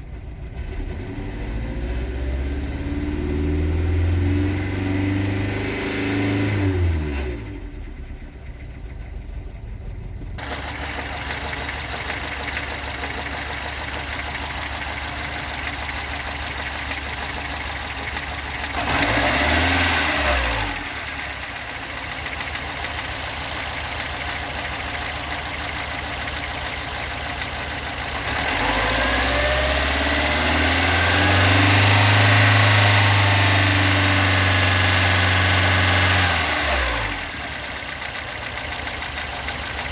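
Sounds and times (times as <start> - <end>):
car engine revving: 0.7 - 7.7, 17.5 - 21.3, 28.1 - 37.4.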